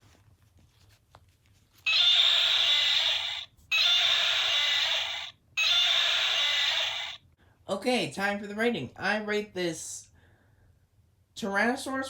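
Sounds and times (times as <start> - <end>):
toy dinosaur roar: 1.9 - 7.2.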